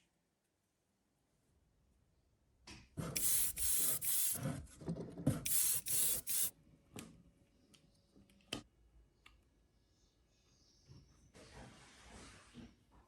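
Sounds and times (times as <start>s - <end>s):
spray paint hissing: 3.2s - 4.4s, 5.5s - 6.5s.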